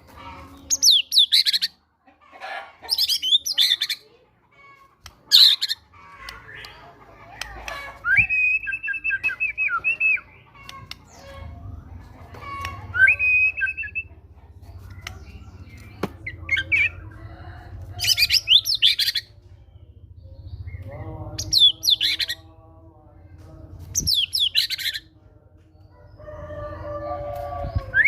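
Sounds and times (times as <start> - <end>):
bird singing rapid sweeping phrases: 0.4 - 1.8, 2.9 - 4.1, 5.1 - 7.0, 7.9 - 17.2, 18.0 - 22.5, 23.8 - 25.2.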